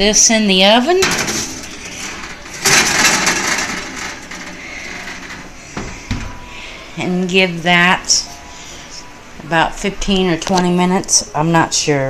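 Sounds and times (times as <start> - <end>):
pan scraping into oven: 0.8 - 6.7.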